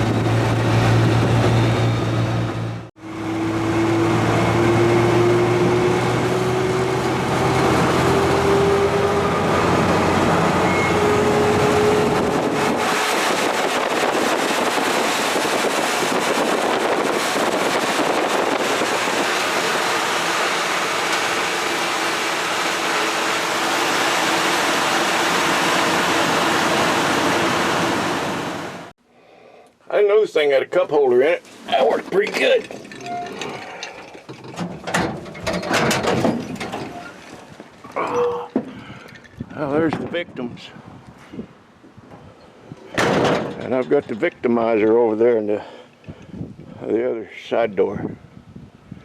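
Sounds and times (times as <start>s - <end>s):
truck engine running: 0.0s - 28.9s
steady rushing noise: 11.5s - 28.9s.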